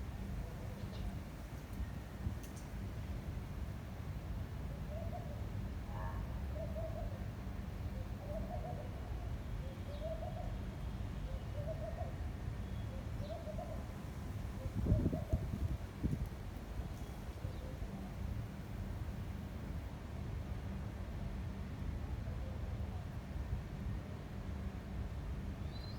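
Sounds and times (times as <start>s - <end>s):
bird hooting call: 4.9s - 5.4s, 6.0s - 7.2s, 7.9s - 9.0s, 9.9s - 10.6s, 11.3s - 12.2s
wind rumbling on microphone: 14.4s - 17.5s.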